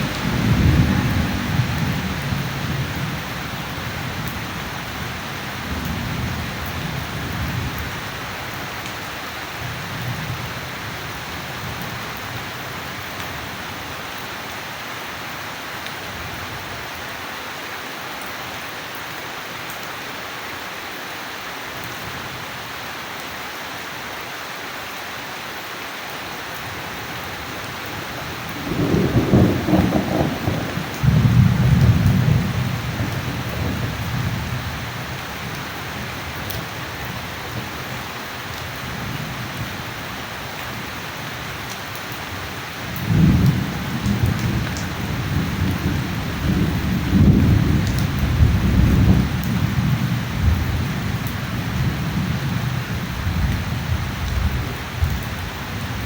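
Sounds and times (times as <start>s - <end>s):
thunder clap: 0.0s - 3.0s, 28.6s - 33.9s
thunder rumbling: 0.0s - 7.8s, 28.3s - 34.7s, 42.9s - 55.3s
heavy rain: 0.0s - 56.0s.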